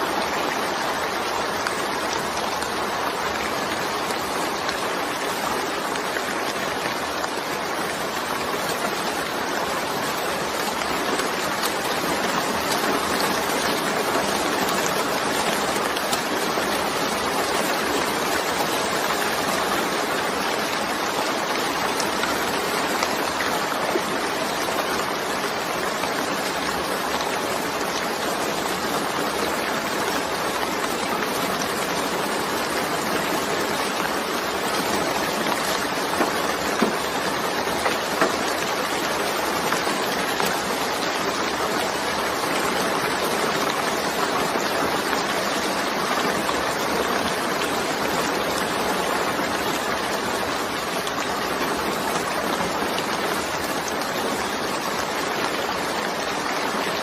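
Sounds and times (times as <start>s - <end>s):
rain drop ticks: 29.4s - 50.2s.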